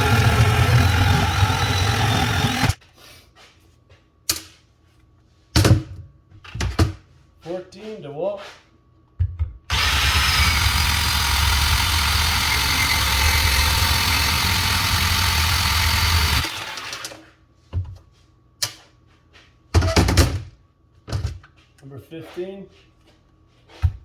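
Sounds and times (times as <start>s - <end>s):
bandsaw cutting pipe: 0.0s - 2.8s, 9.7s - 17.2s.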